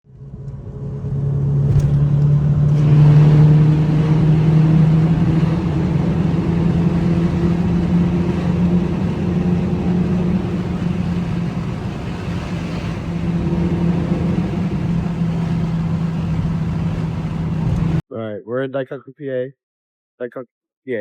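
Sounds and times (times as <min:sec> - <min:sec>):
car engine running: 0:00.1 - 0:18.0.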